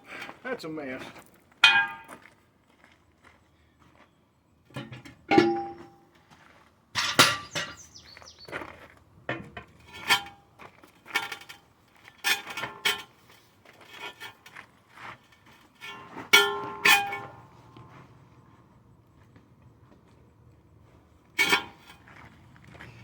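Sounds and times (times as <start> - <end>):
tire irons clanking on metal wheel: 1.6 - 2.1, 4.7 - 6.0, 6.9 - 8.1, 9.3 - 14.5, 15.2 - 18.0, 21.3 - 23.0.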